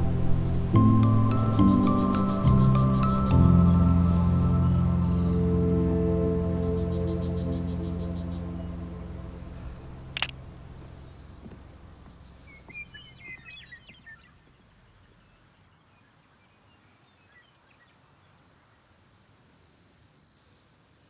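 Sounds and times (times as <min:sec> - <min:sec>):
ambient background music: 0:00.0 - 0:13.2
small bird chirping: 0:00.0 - 0:17.9
sharp click: 0:10.2 - 0:10.4.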